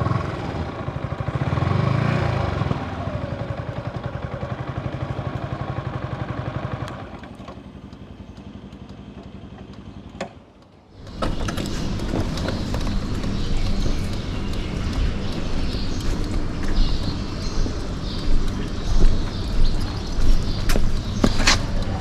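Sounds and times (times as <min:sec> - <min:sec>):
motorcycle engine running: 0:00.0 - 0:22.0
click: 0:06.8 - 0:10.8
rattly rushing noise: 0:11.0 - 0:22.0.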